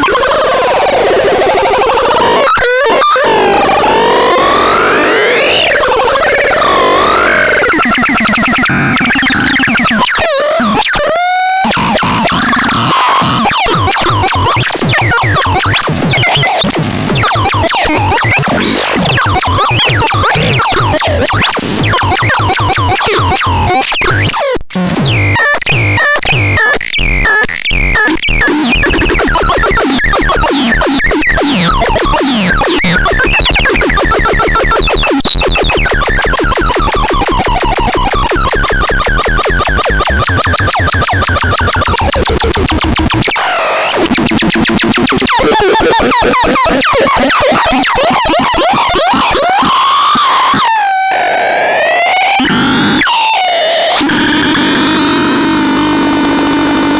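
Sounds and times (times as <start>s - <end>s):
warbling synthesizer tones: 25.0s - 43.3s
fast pulsing beat: 25.1s - 43.3s.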